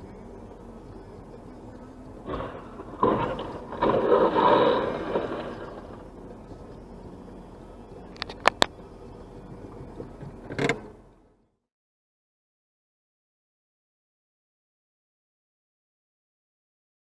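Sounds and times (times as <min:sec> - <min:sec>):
vehicle scraping rush: 0:02.2 - 0:06.8.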